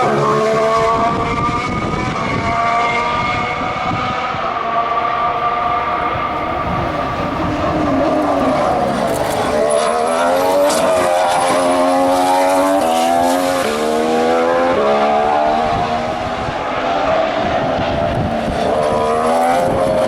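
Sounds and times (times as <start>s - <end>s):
racing car accelerating past: 0.0s - 20.0s
racing car upshifts: 0.0s - 20.0s
lower engine note: 0.8s - 12.9s.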